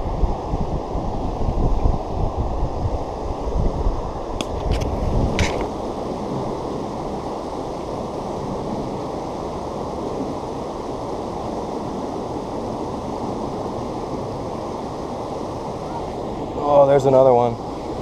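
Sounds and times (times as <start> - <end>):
water rushing over waterfalls: 4.1 - 18.0.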